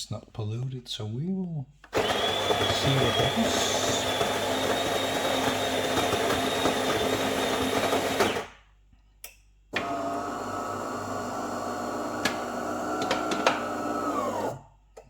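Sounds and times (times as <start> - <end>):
espresso machine whirring: 2.0 - 8.5, 9.8 - 14.6.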